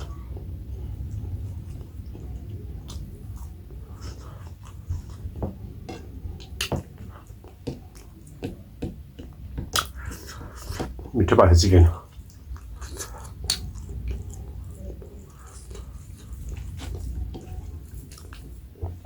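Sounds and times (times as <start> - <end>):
person chewing: 0.0 - 11.1, 12.0 - 19.0
wet mouth smacks: 9.2 - 10.9, 12.6 - 14.2.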